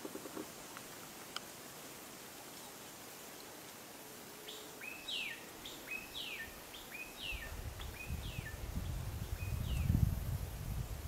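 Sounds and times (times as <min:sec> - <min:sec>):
bird calling: 0:04.4 - 0:08.6.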